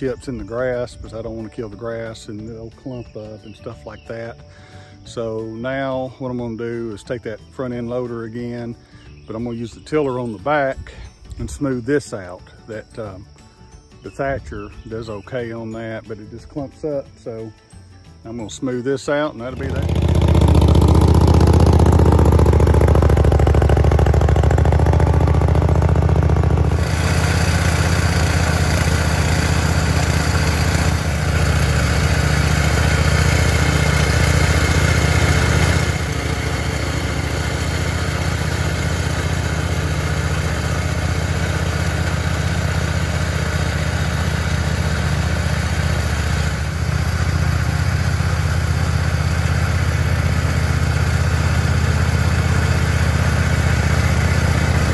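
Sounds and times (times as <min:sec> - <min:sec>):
garden tractor engine running: 0:18.2 - 0:54.9
tiller smoothing wood chips: 0:18.3 - 0:54.9
broad rattling noise: 0:19.6 - 0:54.9.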